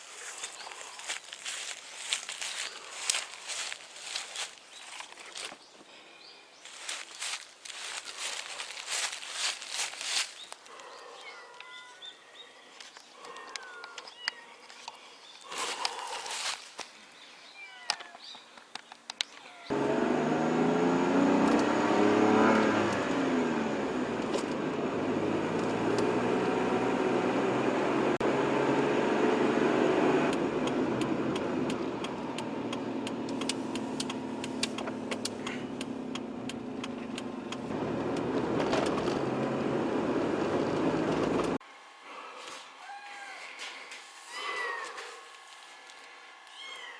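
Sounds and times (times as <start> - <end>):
car engine pulling away: 19.7 - 41.6
light clicks: 30.3 - 38.3.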